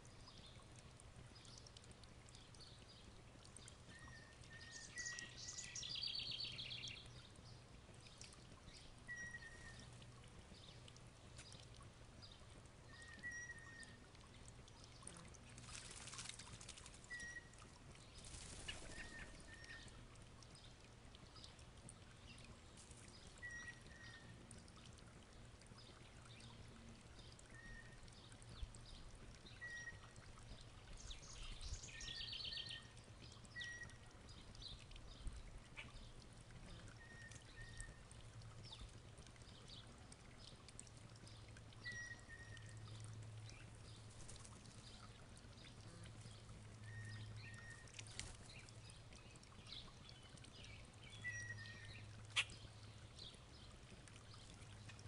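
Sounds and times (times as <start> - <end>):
bird chirping: 3.9 - 7.6, 8.7 - 9.9, 12.9 - 14.0, 17.0 - 17.7, 23.2 - 24.4, 31.0 - 34.7, 50.1 - 52.6.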